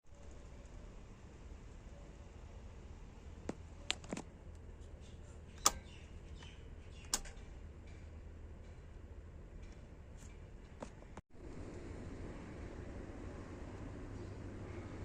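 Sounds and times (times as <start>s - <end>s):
faint low hum: 0.1s - 15.0s
sharp clicks and knocks: 5.6s - 11.2s.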